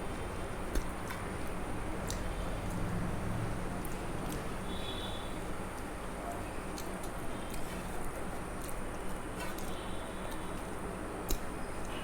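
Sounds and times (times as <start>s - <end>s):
person eating clicking and smacking: 6.7s - 10.4s, 11.2s - 12.0s.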